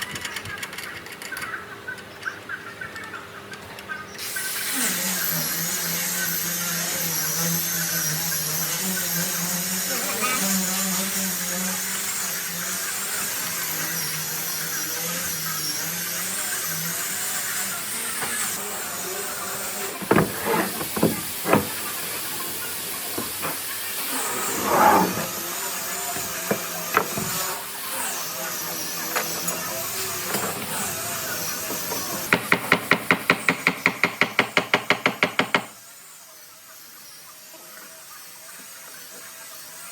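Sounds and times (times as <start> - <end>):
knocks on wood: 20.0 - 21.8, 32.3 - 35.7.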